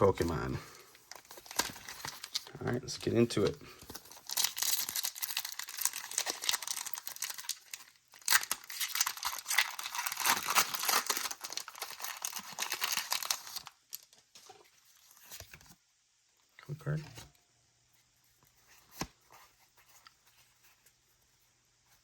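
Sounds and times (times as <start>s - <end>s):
foil wrapper crinkling and tearing: 0.2s - 15.2s.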